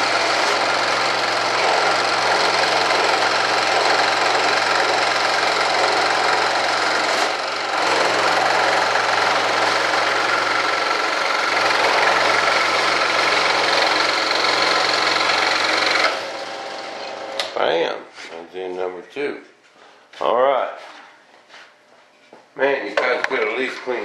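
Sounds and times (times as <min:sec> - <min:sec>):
electric power saw cutting: 0:00.0 - 0:17.6.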